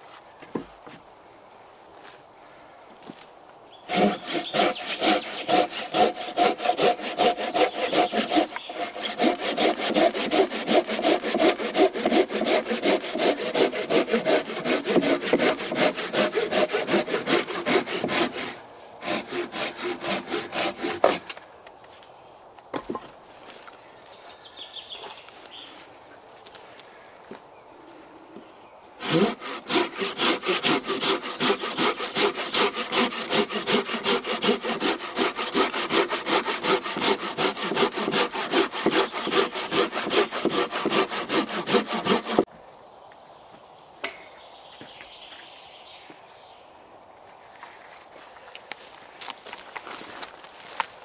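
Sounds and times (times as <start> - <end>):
hand saw cutting log: 3.9 - 21.4, 29.0 - 42.5.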